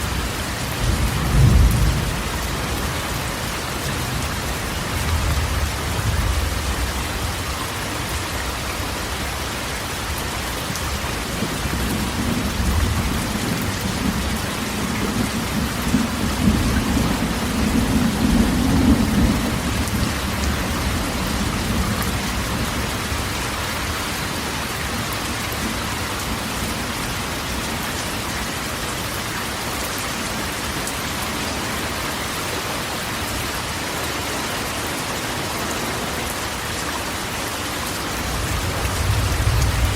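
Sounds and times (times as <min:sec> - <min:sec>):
rain on a metal roof: 0:00.0 - 0:39.9
rolling thunder: 0:00.6 - 0:03.4, 0:38.2 - 0:39.9.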